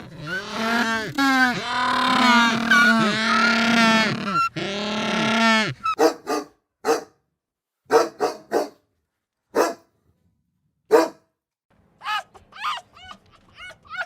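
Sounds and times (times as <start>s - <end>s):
dog barking: 6.0s - 7.2s, 7.9s - 8.8s, 9.5s - 9.9s, 10.9s - 11.3s.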